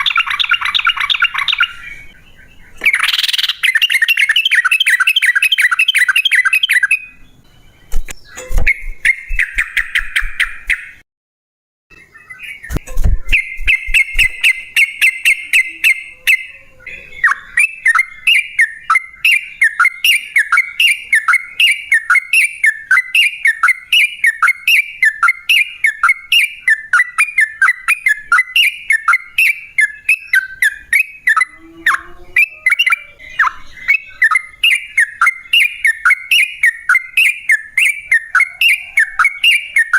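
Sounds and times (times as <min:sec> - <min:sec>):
bird singing: 0:00.0 - 0:11.0, 0:11.9 - 0:39.9.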